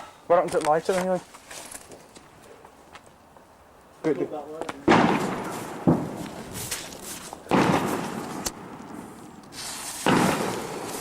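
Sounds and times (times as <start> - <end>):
fireworks hissing and crackling: 4.0 - 11.0
fireworks bangs: 4.6 - 11.0.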